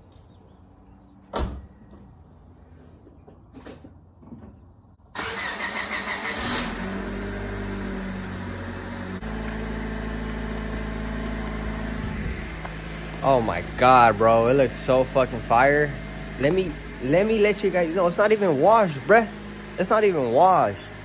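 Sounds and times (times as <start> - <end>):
car engine cranking: 5.1 - 8.4
car engine idling: 6.4 - 21.0.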